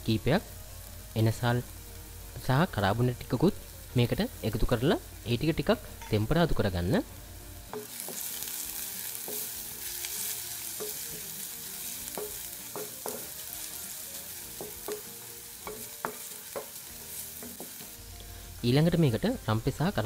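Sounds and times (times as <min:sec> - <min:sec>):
onions and spices sizzling in oil: 0:00.0 - 0:20.0
wooden spoon tapping pot: 0:14.6 - 0:16.8.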